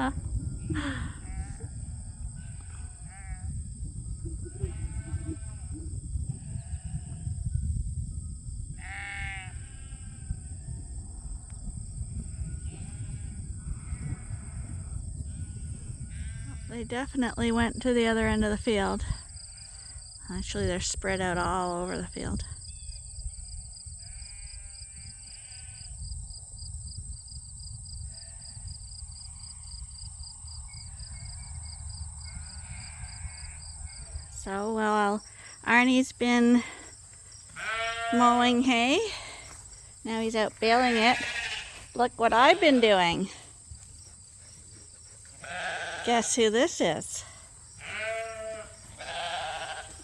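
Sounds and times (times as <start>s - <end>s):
crickets chirping: 0.0s - 50.0s
sheep bleating: 2.4s - 3.5s, 4.5s - 5.8s, 8.8s - 10.2s, 37.5s - 39.3s, 40.6s - 43.5s, 45.4s - 46.5s, 47.8s - 50.0s.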